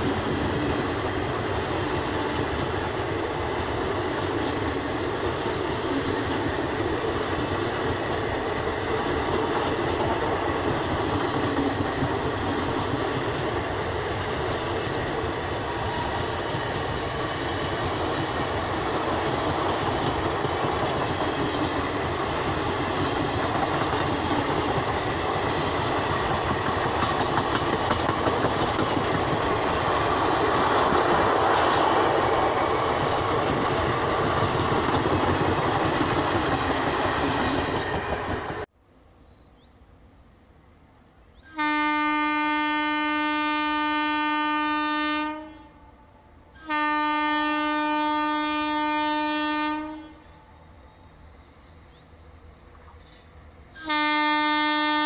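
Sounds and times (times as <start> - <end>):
train wheels on rail: 0.0 - 38.8, 46.3 - 55.0
locomotive horn blast: 41.5 - 45.8, 46.6 - 50.3, 53.8 - 55.0.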